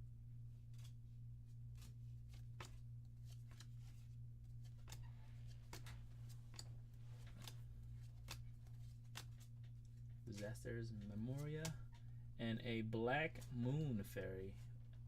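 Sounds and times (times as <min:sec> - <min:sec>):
low electrical hum: 0:00.0 - 0:15.0
cards and wrappers rustling: 0:00.7 - 0:11.9.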